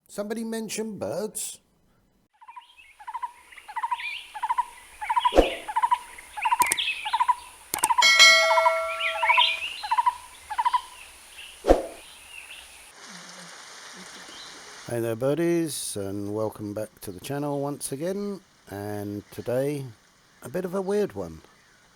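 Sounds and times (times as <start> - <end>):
birds chirping: 2.4 - 12.9, 14.0 - 14.7, 16.5 - 21.9
sharp clicks: 6.5 - 6.9, 7.7 - 8.0
bird repeating short note: 7.9 - 9.7
brief ringing tone: 8.0 - 9.6.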